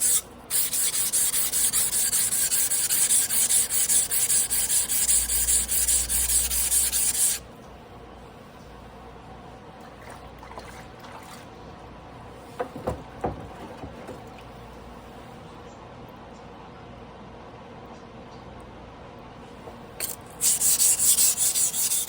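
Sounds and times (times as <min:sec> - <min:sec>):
knife rasping on whetstone: 0:00.0 - 0:07.4, 0:20.0 - 0:22.0.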